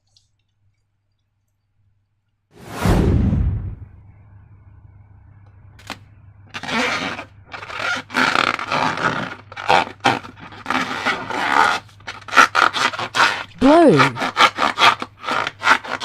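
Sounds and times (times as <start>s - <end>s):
balloon and slime squishing: 6.6s - 16.0s.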